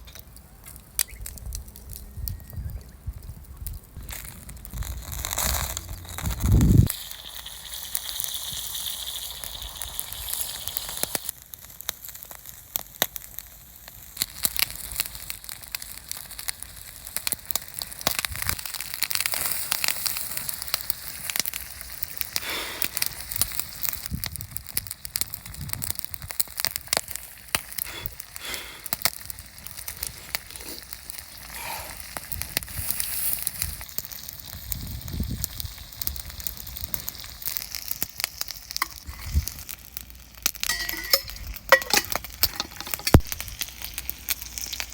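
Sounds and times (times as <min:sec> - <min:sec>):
campfire crackling and popping: 0:00.0 - 0:44.9.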